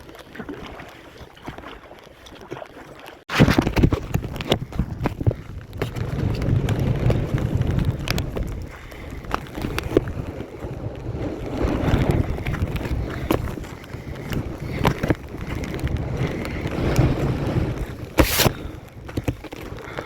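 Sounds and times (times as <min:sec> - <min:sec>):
wind buffeting microphone: 0:03.4 - 0:20.0
kayak paddle knocks and splashes: 0:18.2 - 0:18.6.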